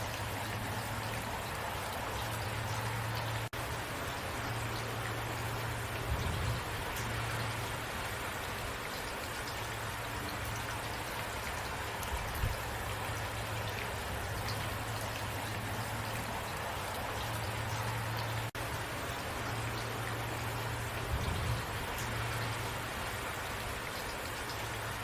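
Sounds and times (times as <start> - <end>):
low steady hum: 0.0 - 25.0
steady rainfall: 0.0 - 25.0.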